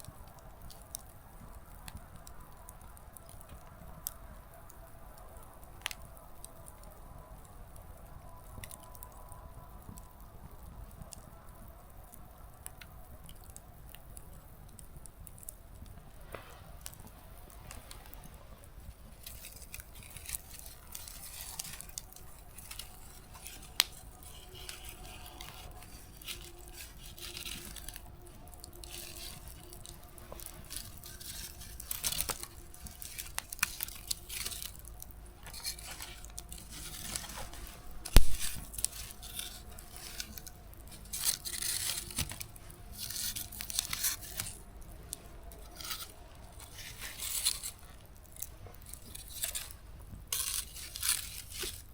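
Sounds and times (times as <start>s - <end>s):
campfire crackling: 0.0s - 51.9s
fire pops and snaps: 0.0s - 51.9s.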